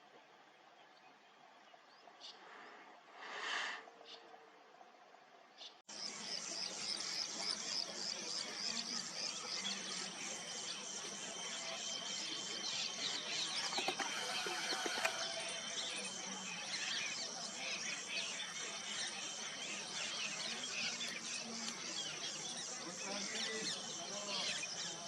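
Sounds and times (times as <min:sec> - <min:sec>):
small birds chirping: 0:05.6 - 0:25.0
insects calling: 0:05.9 - 0:25.0.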